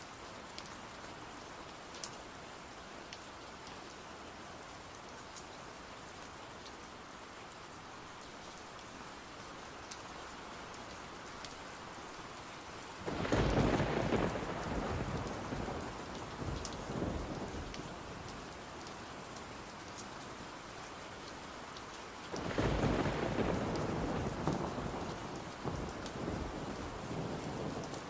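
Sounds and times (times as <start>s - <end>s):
steady rain: 0.0s - 28.0s
thunder rolling: 13.1s - 15.8s, 22.4s - 26.6s.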